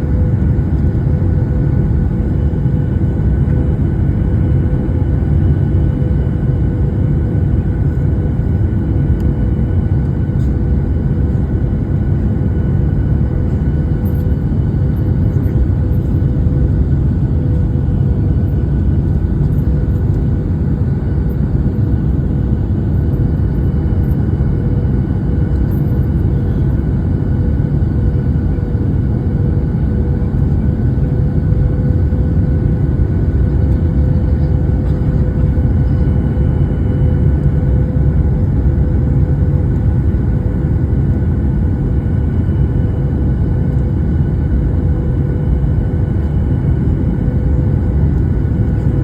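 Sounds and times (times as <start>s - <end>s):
airliner cabin engine rumble: 0.0s - 49.0s
constant hum: 0.0s - 49.0s.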